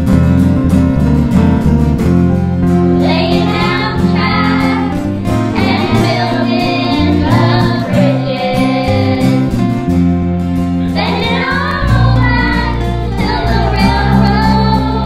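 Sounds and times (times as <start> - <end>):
instrumental accompaniment: 0.0 - 15.0
children's choir singing: 3.0 - 9.6, 10.8 - 15.0.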